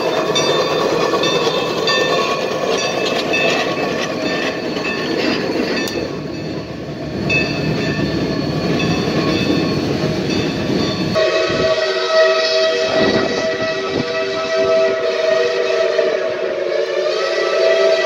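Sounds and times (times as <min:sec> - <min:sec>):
high wheel squeal: 0:00.0 - 0:11.2
steam train running past: 0:00.0 - 0:18.0
steam whistle: 0:11.1 - 0:18.0.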